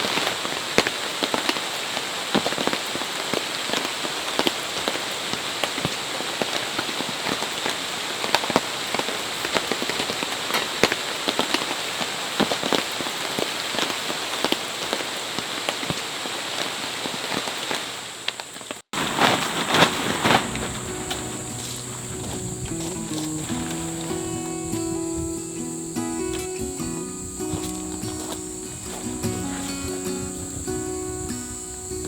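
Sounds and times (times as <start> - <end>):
raindrops tapping on a surface: 0.0 - 24.9.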